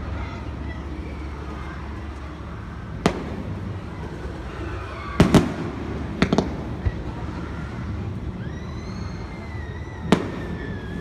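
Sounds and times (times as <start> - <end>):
steady low rumble: 0.0 - 11.0
fireworks bursting with bangs: 2.9 - 8.4, 10.0 - 11.0.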